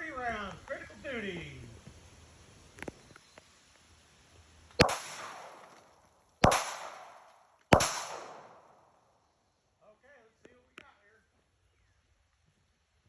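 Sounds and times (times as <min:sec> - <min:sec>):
pistol shots with echo: 0:04.8 - 0:05.8, 0:06.4 - 0:09.0.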